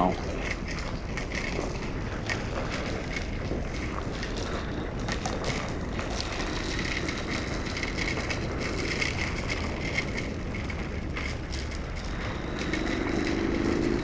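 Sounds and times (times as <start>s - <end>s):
motorcycle running: 0.0s - 14.0s
wind rushing over microphone: 0.0s - 14.0s.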